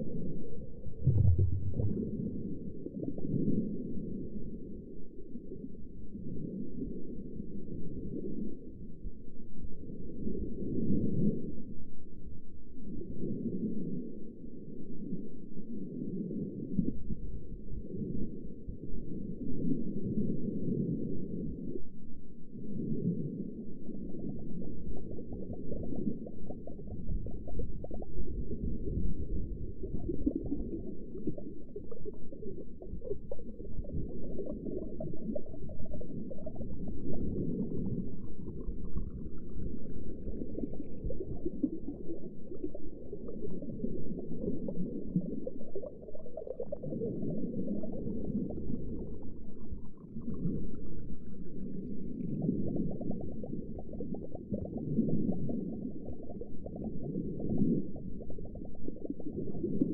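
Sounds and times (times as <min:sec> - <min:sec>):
bubbling and gurgling: 0:00.0 - 0:08.8, 0:22.6 - 0:59.9
underwater low rumble: 0:00.0 - 0:59.9.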